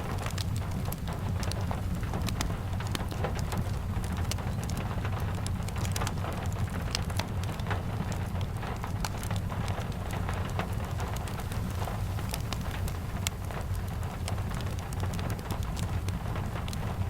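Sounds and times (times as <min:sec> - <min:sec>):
fireplace crackling: 0:00.0 - 0:17.0
rain falling: 0:00.0 - 0:17.0.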